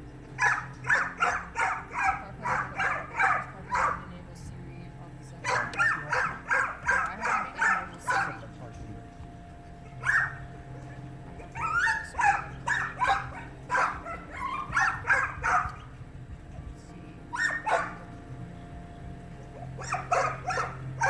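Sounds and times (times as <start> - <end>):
steady low hum: 0.0 - 21.0
small dog yipping and whining: 9.9 - 10.5, 11.4 - 16.0, 17.4 - 18.0, 19.6 - 21.0.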